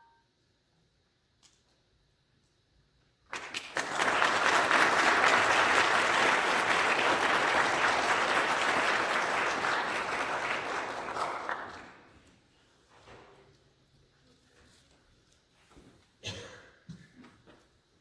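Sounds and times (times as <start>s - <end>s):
audience applauding: 3.3s - 12.3s.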